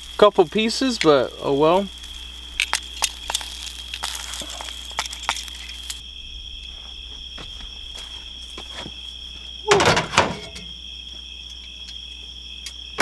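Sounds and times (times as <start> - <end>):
food sizzling in a skillet: 0.0 - 6.0
night insects chirring: 0.0 - 13.0.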